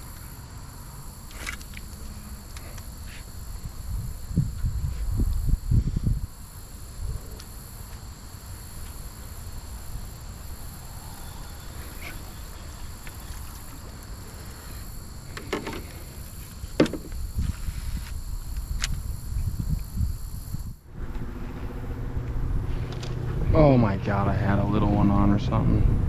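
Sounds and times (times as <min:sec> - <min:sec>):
faint high insect-like drone: 0:00.0 - 0:22.3
short knocks: 0:16.8 - 0:17.2
river rumble: 0:20.9 - 0:26.0.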